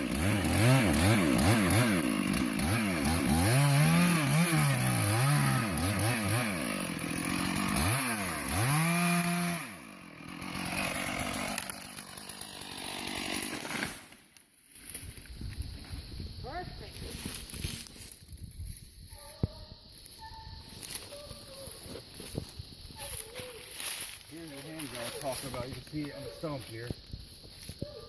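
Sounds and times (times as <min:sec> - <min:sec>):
chainsaw cutting wood: 0:00.0 - 0:14.2, 0:23.7 - 0:26.6.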